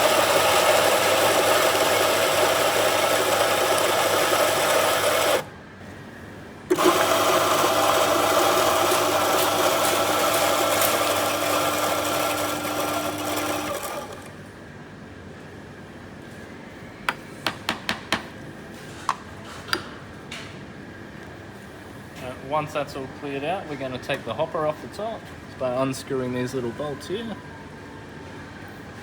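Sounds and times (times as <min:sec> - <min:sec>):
coffee grinder motor running: 0:00.0 - 0:05.5, 0:06.7 - 0:14.3.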